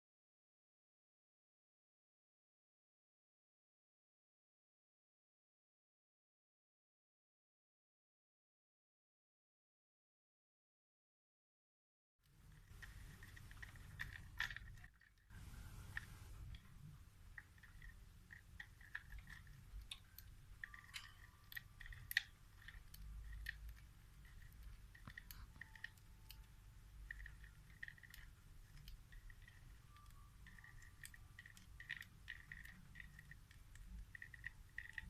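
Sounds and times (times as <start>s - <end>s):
bird pecking plastic toy: 12.3s - 35.0s.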